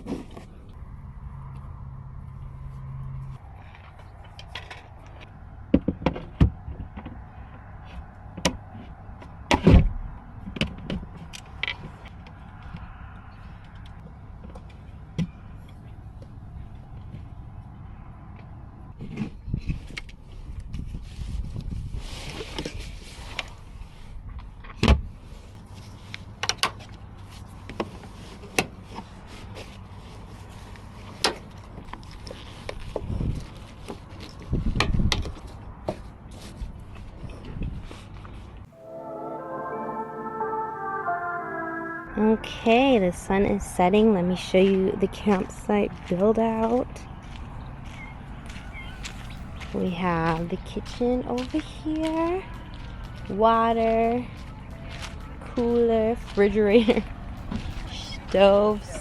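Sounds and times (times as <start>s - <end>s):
low hum: 38.7s - 43.8s, 48.3s - 59.0s.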